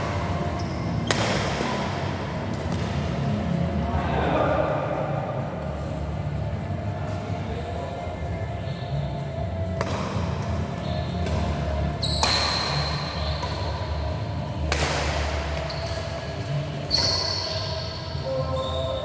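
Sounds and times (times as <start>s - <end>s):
sharp hits echoing in a hall: 0.0s - 5.6s, 9.6s - 19.0s
high squeaks: 16.8s - 19.0s.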